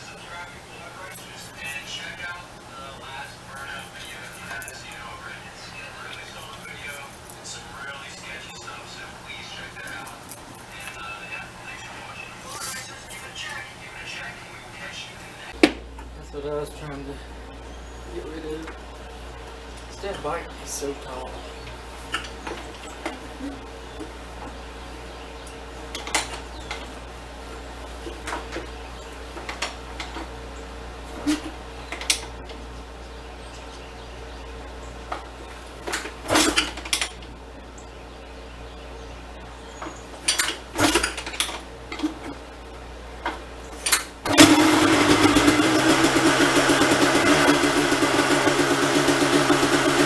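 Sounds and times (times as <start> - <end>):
steady hum: 0.0 - 50.0
motorcycle kick-start: 35.9 - 37.1, 40.3 - 41.5, 43.8 - 50.0
motorcycle engine running: 44.3 - 50.0.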